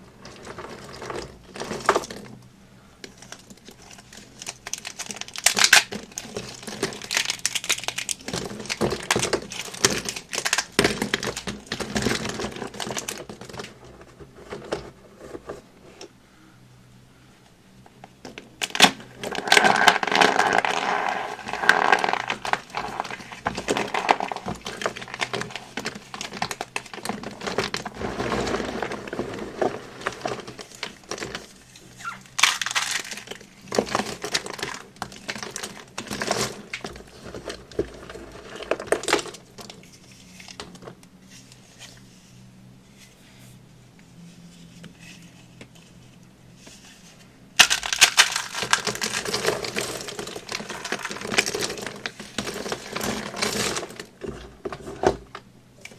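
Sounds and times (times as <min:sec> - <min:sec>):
dry material crunching by hand: 0:03.6 - 0:13.5, 0:18.6 - 0:39.6, 0:47.6 - 0:54.3.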